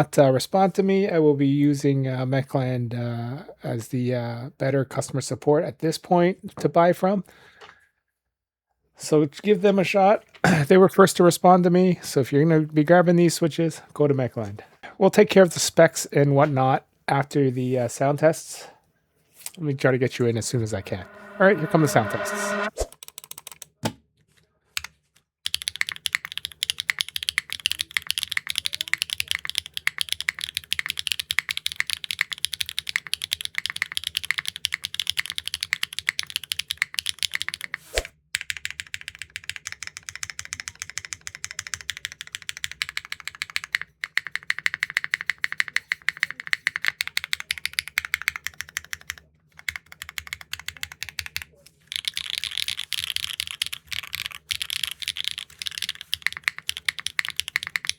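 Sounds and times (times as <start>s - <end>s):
fast typing on mechanical keyboard: 25.5s - 37.8s, 38.4s - 57.9s.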